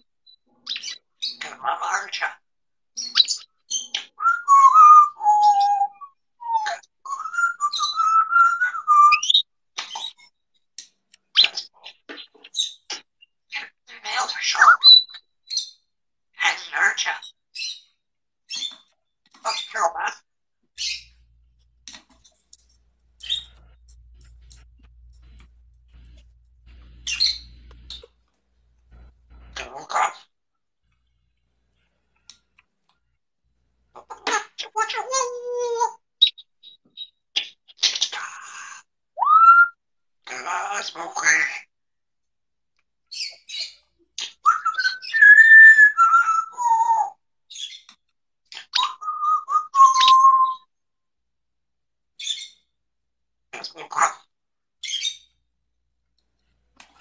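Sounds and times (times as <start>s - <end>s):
parrot high chirp: 3.0s - 10.2s, 12.5s - 15.7s, 19.4s - 20.2s, 20.8s - 21.2s, 23.2s - 24.0s, 27.0s - 28.1s, 39.2s - 41.6s, 43.1s - 47.9s, 48.6s - 50.7s
parrot whistling: 4.2s - 9.2s, 39.2s - 39.8s, 44.4s - 47.1s, 48.8s - 50.6s.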